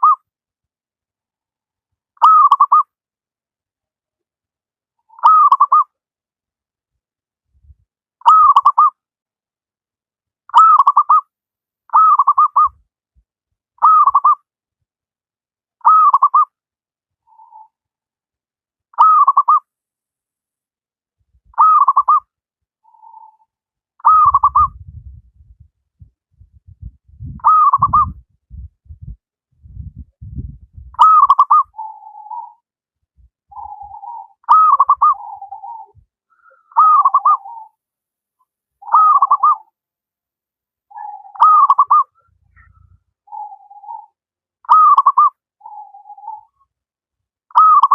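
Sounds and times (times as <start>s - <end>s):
dove cooing: 24.0s - 24.8s, 27.4s - 28.2s, 31.0s - 32.6s, 33.5s - 37.8s, 38.8s - 39.6s, 40.9s - 46.6s
low rumble: 24.7s - 31.0s.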